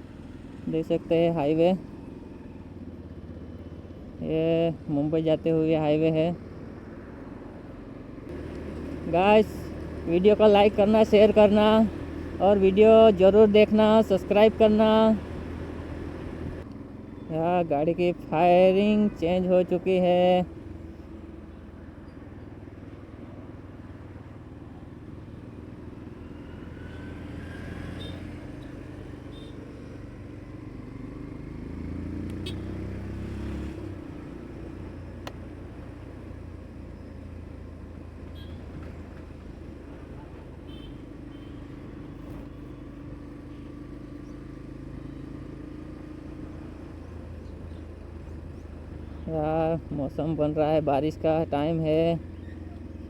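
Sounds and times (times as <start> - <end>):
motorcycle engine cruising: 0.0 - 53.0
road and wind noise: 0.0 - 53.0
person speaking: 8.9 - 15.4, 17.3 - 20.5.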